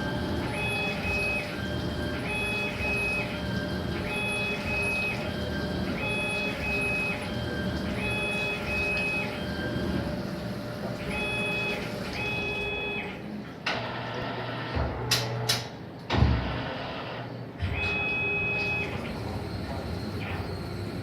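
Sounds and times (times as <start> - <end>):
lathe mechanical drone: 0.0 - 15.1, 18.2 - 21.0
heavy thump: 16.1 - 16.6.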